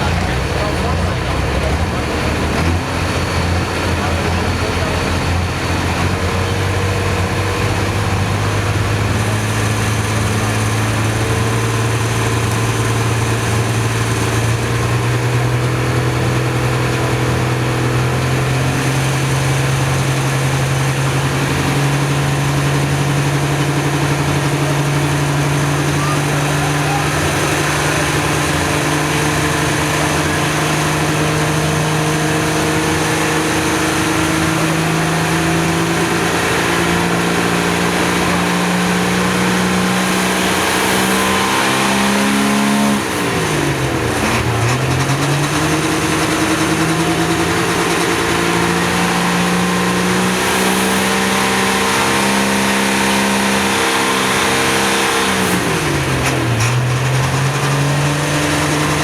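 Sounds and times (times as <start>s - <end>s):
tractor engine revving under load: 0.0s - 59.0s.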